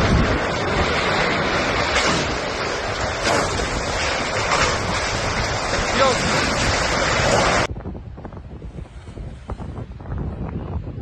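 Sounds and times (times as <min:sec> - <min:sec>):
surf: 0:00.0 - 0:07.7
strong wind gusting on microphone: 0:00.0 - 0:11.0.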